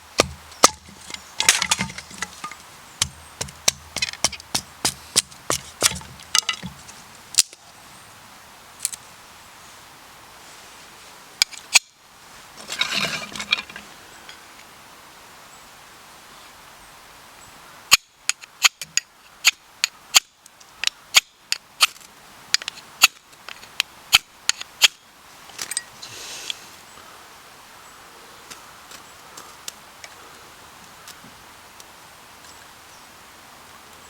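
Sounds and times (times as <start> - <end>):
short hiss: 26.0 - 26.8.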